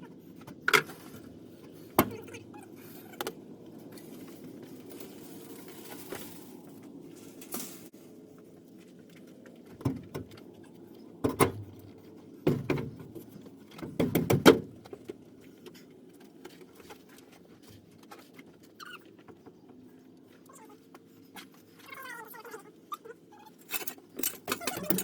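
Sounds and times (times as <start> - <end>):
sharp knocks and clatters: 11.2 - 15.2.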